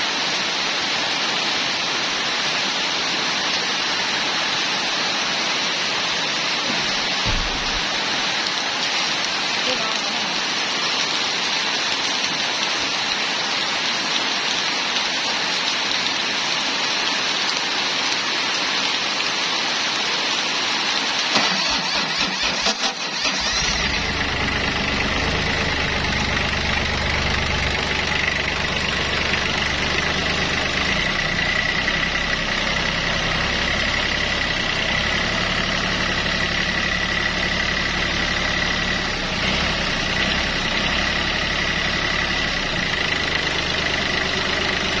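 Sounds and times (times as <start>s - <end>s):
engine cranking and idling: 21.3s - 45.0s.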